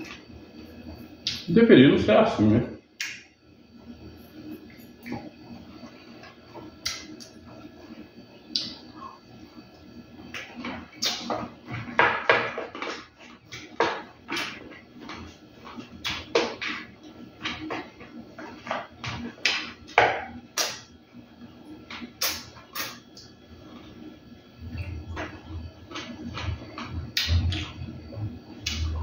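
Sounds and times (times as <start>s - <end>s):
man chewing and lip-smacking: 8.5s - 8.8s, 10.3s - 11.3s, 24.7s - 29.0s.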